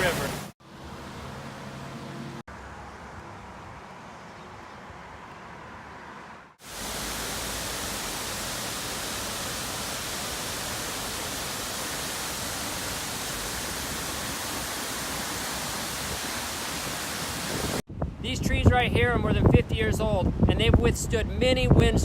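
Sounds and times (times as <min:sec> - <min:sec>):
rushing water: 0:00.0 - 0:00.6, 0:06.6 - 0:17.8.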